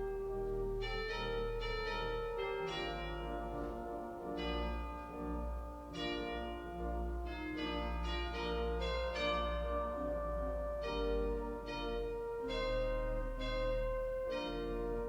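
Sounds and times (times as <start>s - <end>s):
instrumental music: 0.0s - 15.0s.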